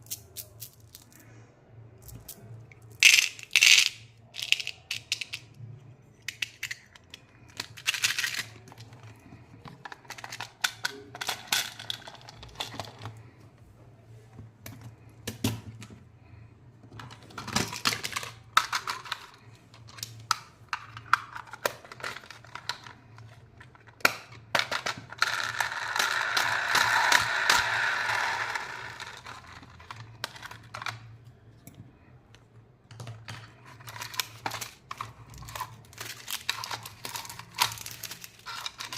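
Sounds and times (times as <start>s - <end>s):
wrapper crinkling: 33.8s - 38.9s.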